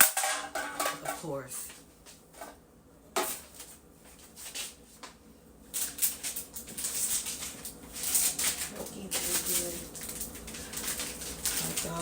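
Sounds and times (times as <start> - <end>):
packaging rustling and clattering: 3.2 - 12.0.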